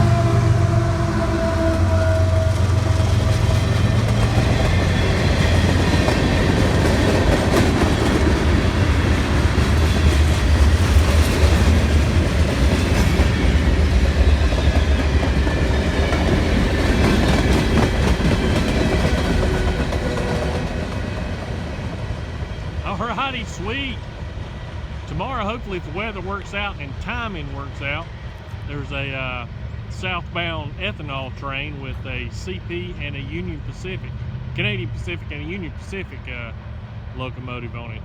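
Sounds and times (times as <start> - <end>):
freight train rumbling past: 0.0 - 38.0
wheels clickety-clack on rails: 1.4 - 23.0.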